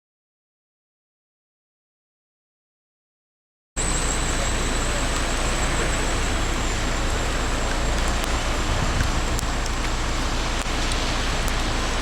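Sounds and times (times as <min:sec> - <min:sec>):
heavy rain hiss: 0:03.8 - 0:12.0
running floodwater: 0:03.8 - 0:12.0.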